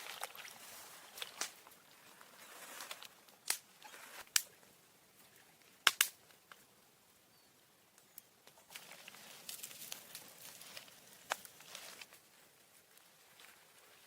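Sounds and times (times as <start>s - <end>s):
soft rustling: 0.2s - 3.2s, 8.6s - 14.0s
sharp clicks: 5.9s - 6.2s.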